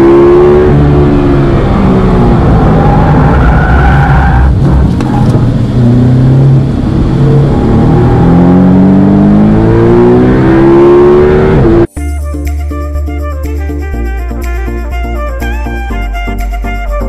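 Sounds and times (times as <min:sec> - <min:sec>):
car engine accelerating: 0:00.0 - 0:11.9.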